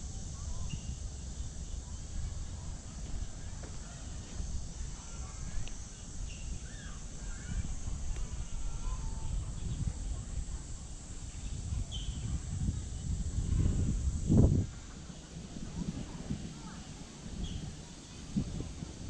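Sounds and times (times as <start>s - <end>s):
steady high hiss: 0.0s - 19.0s
uneven low rumble: 0.0s - 19.0s
faint bird chirps: 0.5s - 1.5s, 5.0s - 9.8s, 11.3s - 12.4s, 17.4s - 17.7s.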